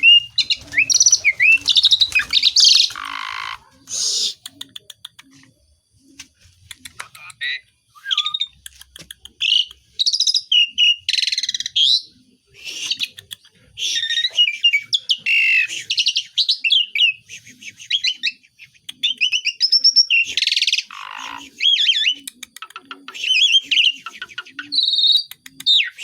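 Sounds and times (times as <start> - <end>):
starling singing: 0.0 - 4.4, 19.0 - 26.0.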